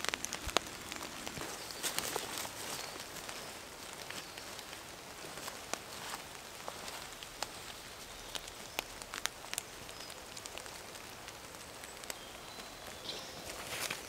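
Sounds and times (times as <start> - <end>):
rain hissing in a forest: 0.0 - 14.0
raindrop ticks: 0.0 - 14.0.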